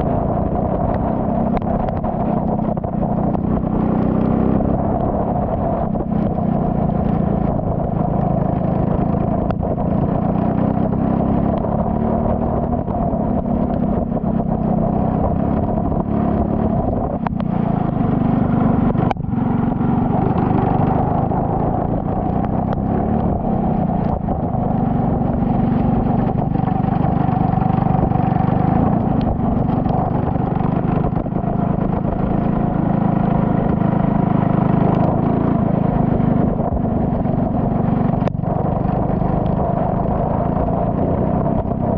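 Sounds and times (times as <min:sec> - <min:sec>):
race car engine running hard: 0:11.4 - 0:41.9.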